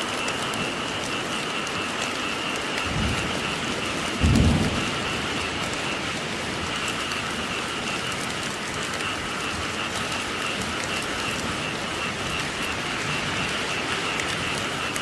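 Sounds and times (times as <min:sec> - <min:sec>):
steady rain: 0:00.0 - 0:15.0
low thunder rumble: 0:02.8 - 0:15.0.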